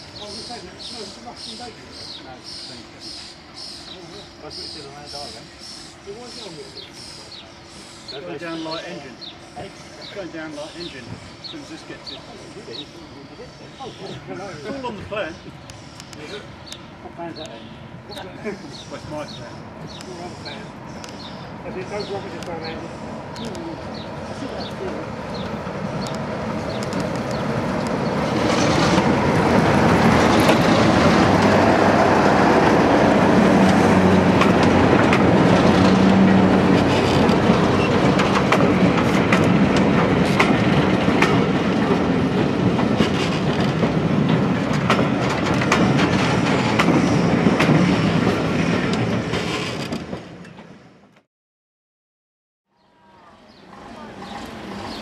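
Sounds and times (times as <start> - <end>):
diesel locomotive engine: 0.0 - 51.2, 53.0 - 55.0
wheels clicking over rail joints: 24.4 - 31.9, 33.4 - 50.7.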